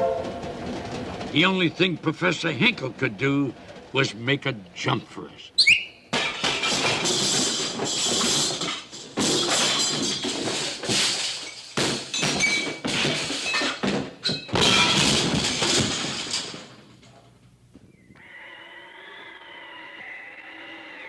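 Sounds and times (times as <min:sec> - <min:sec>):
cartoon crashes and thumps: 0:06.1 - 0:16.7.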